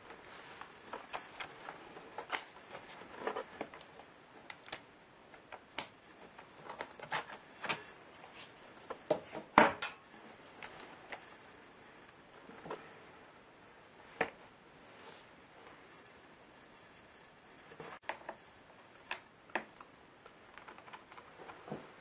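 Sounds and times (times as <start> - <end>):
laptop plastic parts clicking: 19.0 - 21.4.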